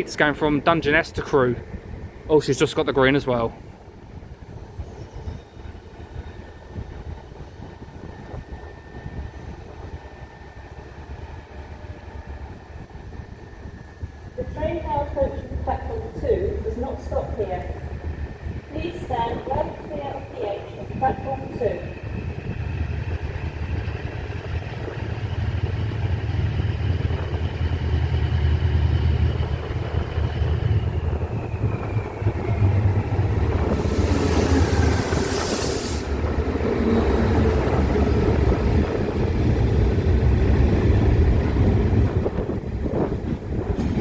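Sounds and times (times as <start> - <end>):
diesel locomotive engine rumble: 0.0 - 44.0
loud hiss: 33.7 - 36.3.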